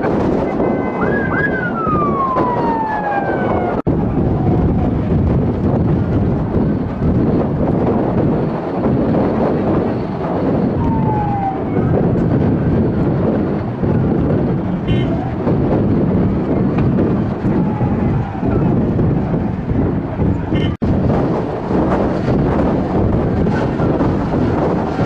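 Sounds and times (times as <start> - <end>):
faint siren wailing: 0.2 - 5.4, 10.6 - 13.1, 14.8 - 20.7.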